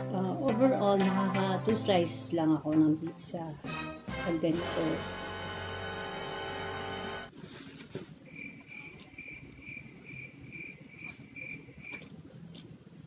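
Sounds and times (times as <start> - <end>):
cricket chirping: 8.2 - 13.0.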